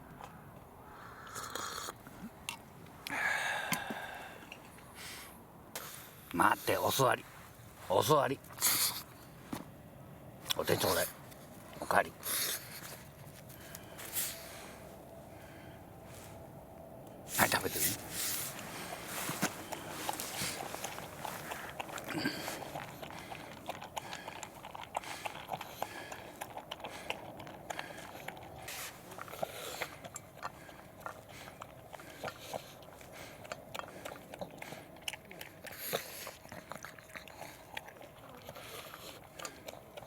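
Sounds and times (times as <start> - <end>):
dog crunching food: 10.4 - 15.7, 17.4 - 40.0.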